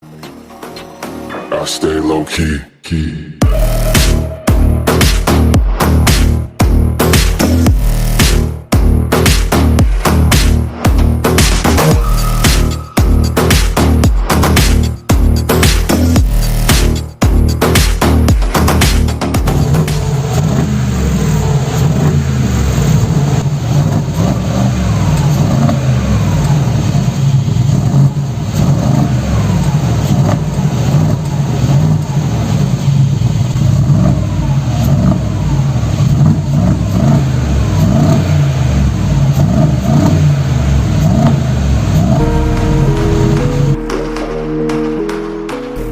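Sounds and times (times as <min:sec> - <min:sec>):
car engine revving: 0:03.4 - 0:45.9.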